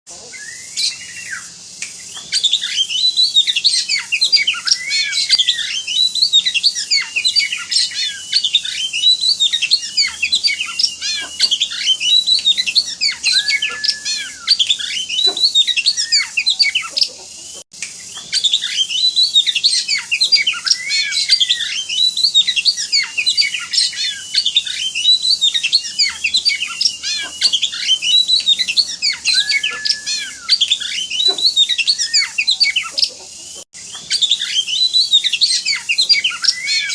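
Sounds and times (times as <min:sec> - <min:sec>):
bird singing varied whistled notes: 0:00.3 - 0:17.1, 0:17.8 - 0:36.9.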